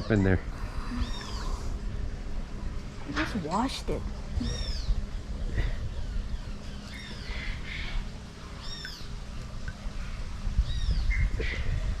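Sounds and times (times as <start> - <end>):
bird chirping: 6.0 - 11.4.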